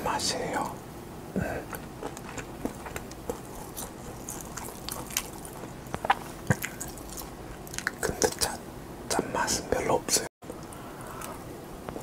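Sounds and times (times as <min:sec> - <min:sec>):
person chewing with wet mouth clicks: 0:01.6 - 0:08.5.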